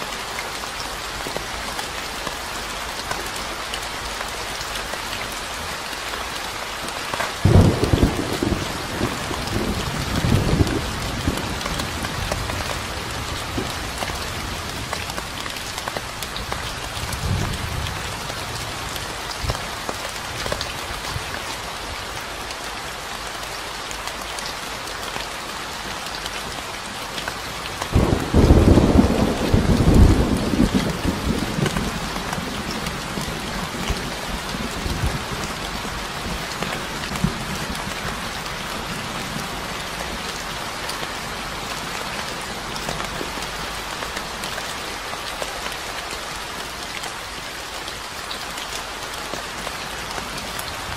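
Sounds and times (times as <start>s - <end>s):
steady rain falling: 0.0s - 50.9s
thunder rumbling: 7.4s - 15.0s, 27.9s - 33.8s.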